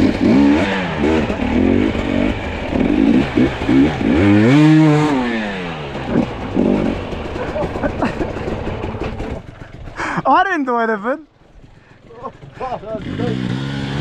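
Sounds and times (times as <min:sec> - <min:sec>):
dirt bike engine revving: 0:00.0 - 0:10.2, 0:11.6 - 0:14.0.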